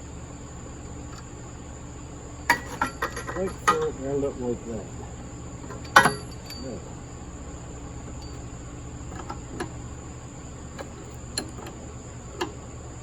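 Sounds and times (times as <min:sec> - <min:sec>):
hand tools clicking and tapping: 0:02.5 - 0:04.0, 0:09.1 - 0:09.8, 0:10.8 - 0:11.8, 0:12.4 - 0:12.6.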